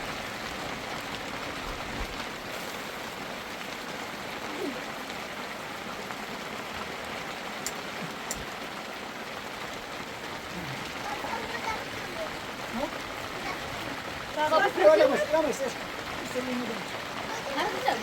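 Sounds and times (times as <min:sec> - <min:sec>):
heavy rain falling: 0:00.0 - 0:18.0
faint clicks: 0:07.6 - 0:08.5.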